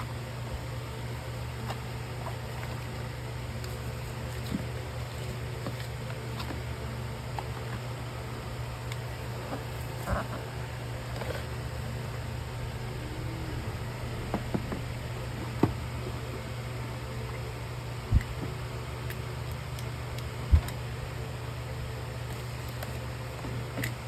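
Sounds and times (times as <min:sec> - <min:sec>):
low hum: 0:10.5 - 0:18.6.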